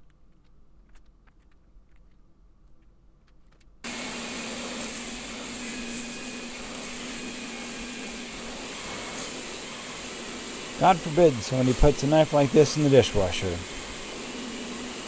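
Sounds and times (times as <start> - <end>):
machine motor whirring: 3.9 - 15.0.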